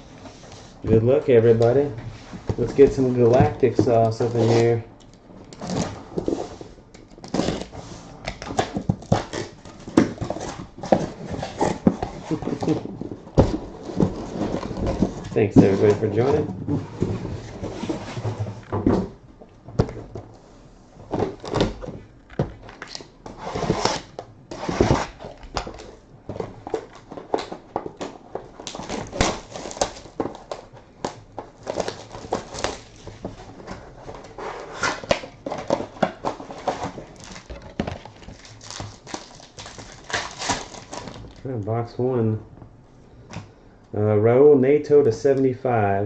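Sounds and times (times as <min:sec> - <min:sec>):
plastic wrap crinkling: 0:26.5 - 0:41.5.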